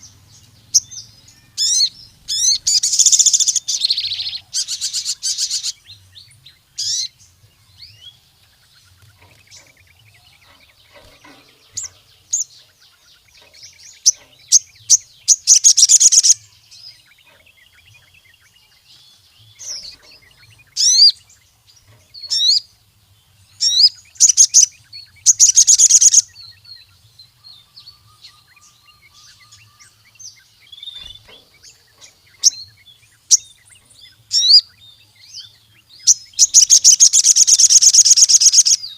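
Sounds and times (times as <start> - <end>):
sunbird chirping and trilling: 0.0 - 38.9.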